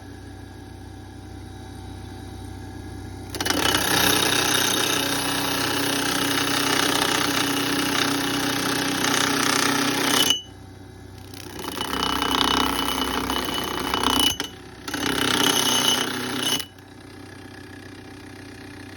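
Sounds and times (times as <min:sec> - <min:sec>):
grinder motor running: 0:03.2 - 0:10.5, 0:11.1 - 0:18.9.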